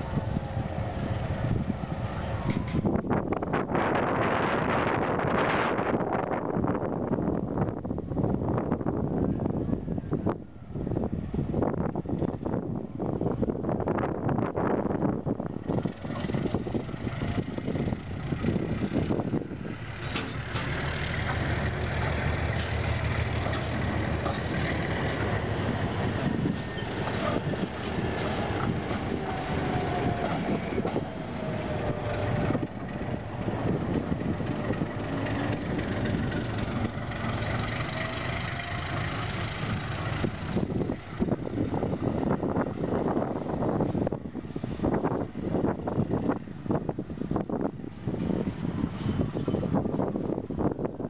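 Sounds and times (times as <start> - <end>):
train wheels rumbling on rails: 0.0 - 51.0
wheels clacking over rail joints: 2.0 - 3.4, 15.5 - 44.2, 47.7 - 50.8
faint wheel squeals: 30.3 - 31.0, 48.5 - 49.8.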